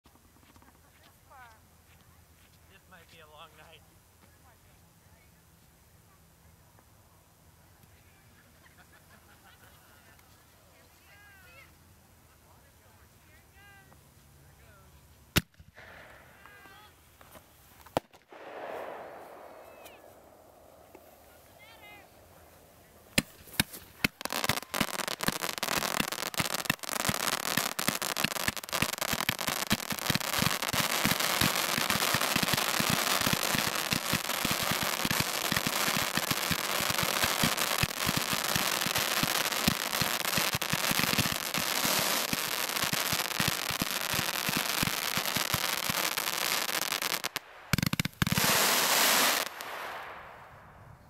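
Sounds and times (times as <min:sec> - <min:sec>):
firework fountains crackling: 0:15.8 - 0:50.4
firework bangs: 0:17.9 - 0:21.8, 0:23.1 - 0:50.6.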